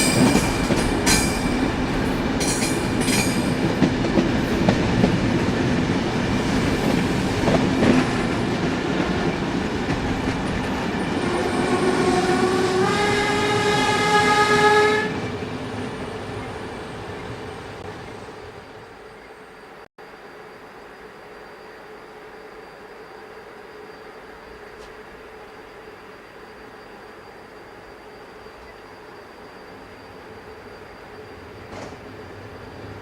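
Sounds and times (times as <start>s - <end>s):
train wheels on rails: 0.0s - 19.8s, 23.7s - 33.0s
train horn: 11.1s - 15.4s.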